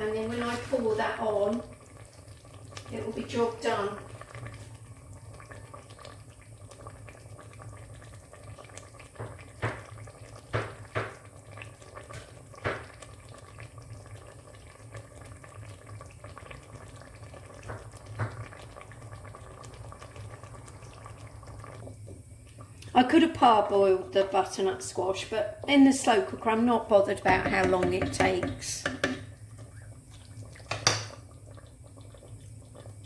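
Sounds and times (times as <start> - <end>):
knocks in ceramic pot: 27.2 - 29.2, 30.7 - 31.2.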